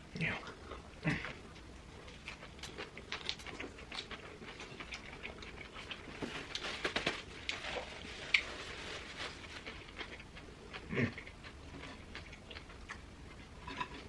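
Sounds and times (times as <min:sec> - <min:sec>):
person chewing food: 0:00.2 - 0:06.6, 0:07.4 - 0:14.0
small clicks and crackles: 0:02.1 - 0:10.9.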